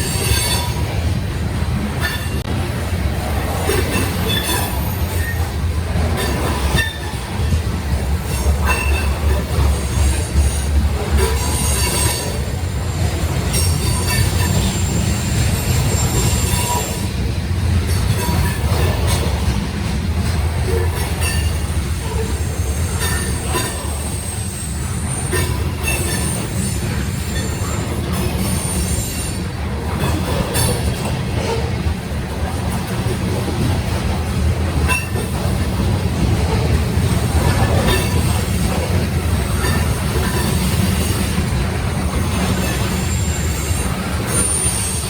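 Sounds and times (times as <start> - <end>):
metallic wheel squeals: 0.0 - 0.9, 3.7 - 5.5, 6.2 - 7.3, 8.4 - 17.1, 21.0 - 31.0, 39.4 - 41.4, 42.2 - 45.0
freight train rumbling past: 0.0 - 45.0.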